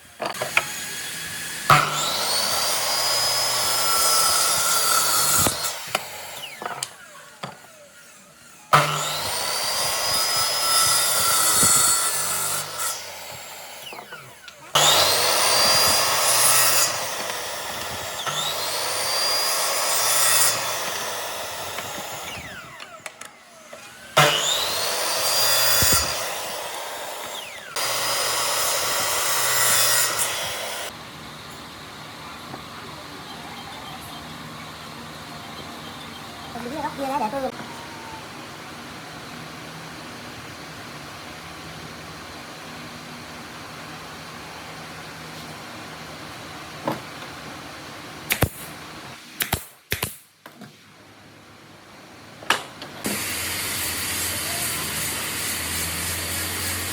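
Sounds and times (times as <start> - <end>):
power tool cutting wood: 0.0 - 38.2, 53.0 - 56.9
motor whine: 13.1 - 38.9.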